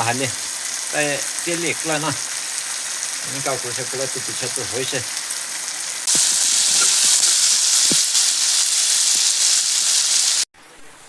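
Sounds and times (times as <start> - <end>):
food frying in oil: 0.0 - 10.5.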